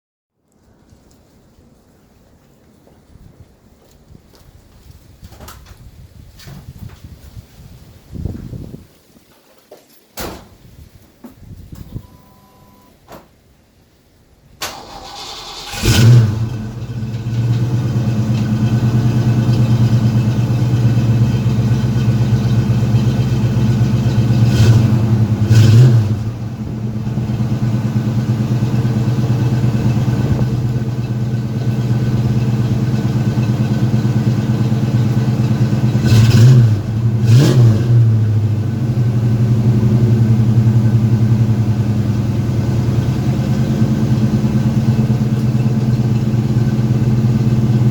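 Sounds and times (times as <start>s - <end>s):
starter motor cranking: 14.7s - 16.4s
car engine idling and revving: 14.8s - 47.9s.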